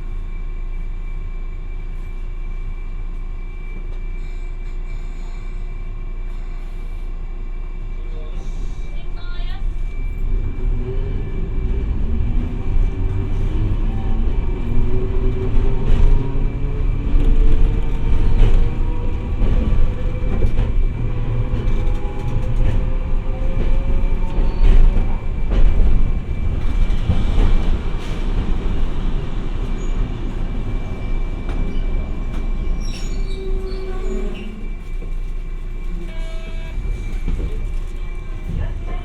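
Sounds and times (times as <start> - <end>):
tram wheels rumbling on rail: 0.0 - 39.0.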